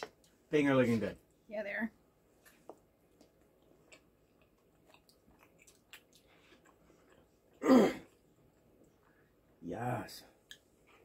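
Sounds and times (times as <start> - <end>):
wet chewing and mouth clicks: 2.4 - 9.2.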